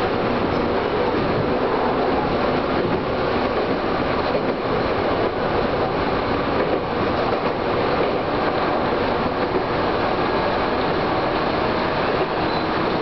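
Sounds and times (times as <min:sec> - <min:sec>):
train wheel-on-rail running noise: 0:00.0 - 0:13.0.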